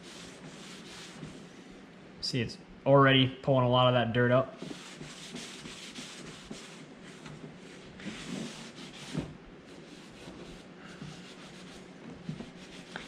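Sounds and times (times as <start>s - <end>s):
cloth rubbing on plastic: 0.0s - 1.5s, 4.6s - 13.0s.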